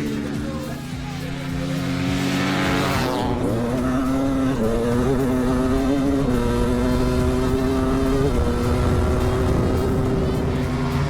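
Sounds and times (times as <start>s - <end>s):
background music: 0.0s - 11.0s
dirt bike engines revving: 0.0s - 11.0s.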